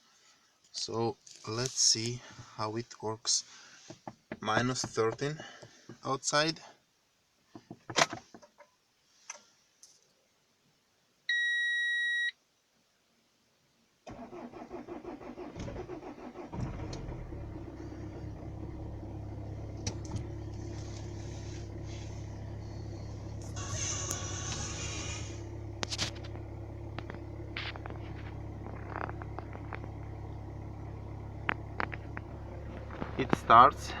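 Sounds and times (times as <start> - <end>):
starter cranking engine: 14.1 - 34.0
diesel engine idling: 14.2 - 34.0
clicks: 25.8 - 30.2, 31.4 - 33.6
person talking: 33.0 - 34.0.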